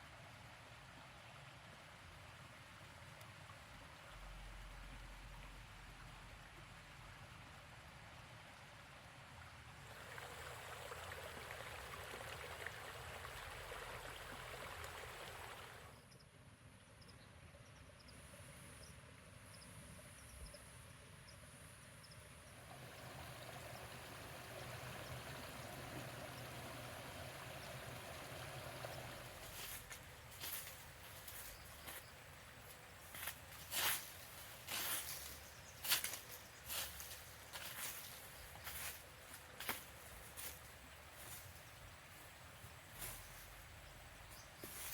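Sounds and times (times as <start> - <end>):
rain hissing: 22.6 - 44.9.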